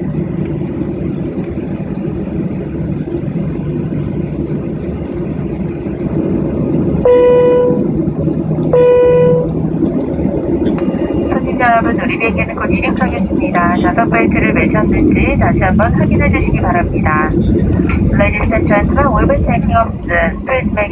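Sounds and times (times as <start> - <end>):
airliner cabin hum: 0.0 - 20.9.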